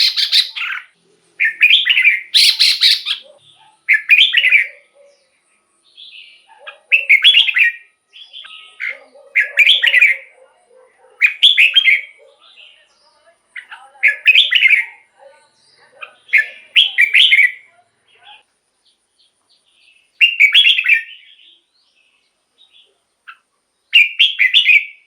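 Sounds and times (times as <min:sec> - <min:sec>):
bulbul warbling song: 0:00.0 - 0:05.1.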